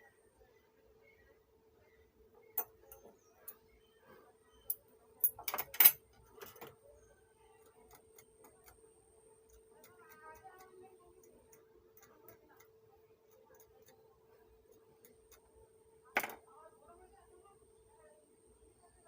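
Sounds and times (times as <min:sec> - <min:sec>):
faint steady hum: 0:00.0 - 0:19.0
clicks and taps on a workbench: 0:16.2 - 0:16.4.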